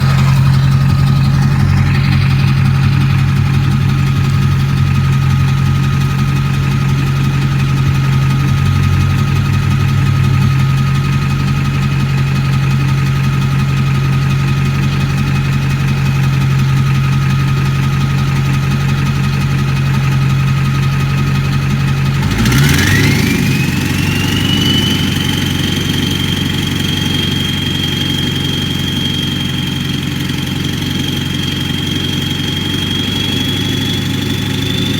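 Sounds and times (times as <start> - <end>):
turbo whistle: 0.0 - 11.6, 22.5 - 34.9
diesel engine idling: 0.0 - 34.9.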